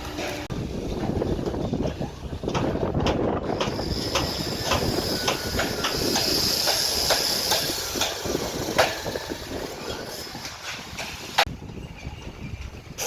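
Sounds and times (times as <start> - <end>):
metal clanks: 0.0 - 11.5
excavator engine rumble: 0.0 - 13.0
high squeal: 3.6 - 13.0.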